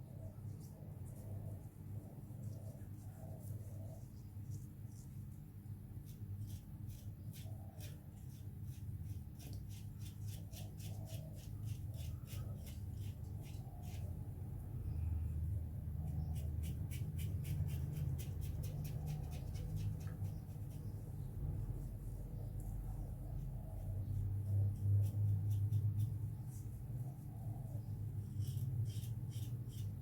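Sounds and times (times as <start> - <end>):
razor scraping stubble: 28.2 - 30.0.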